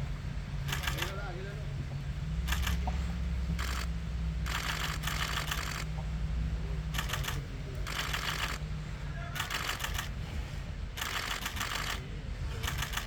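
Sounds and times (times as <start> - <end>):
low steady rumble: 0.0 - 13.0
camera shutters firing in bursts: 0.6 - 1.2, 2.5 - 2.9, 3.6 - 5.9, 7.0 - 8.6, 9.4 - 10.2, 11.0 - 13.0.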